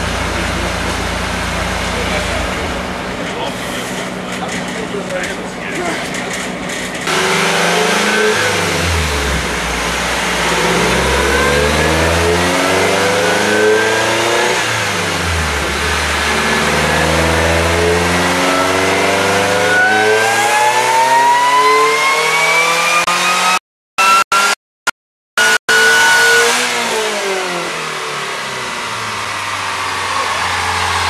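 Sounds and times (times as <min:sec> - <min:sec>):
supercharger whine: 0:00.0 - 0:23.0, 0:25.4 - 0:31.0
car engine revving under load: 0:00.0 - 0:24.5.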